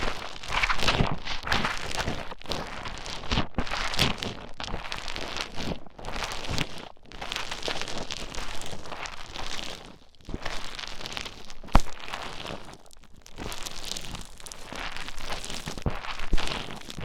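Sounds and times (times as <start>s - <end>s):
foam crackling squished: 7.2s - 17.0s.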